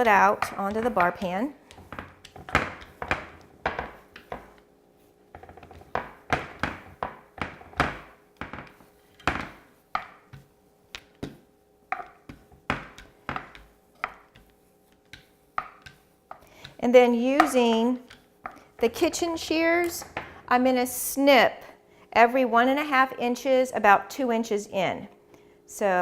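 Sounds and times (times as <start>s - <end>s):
roller thunking on dough: 0.0s - 4.6s, 5.3s - 19.3s.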